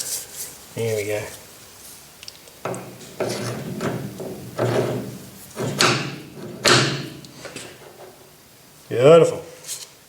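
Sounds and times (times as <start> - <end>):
reamer scraping in lathe: 2.7 - 8.2
lathe humming: 2.7 - 8.4.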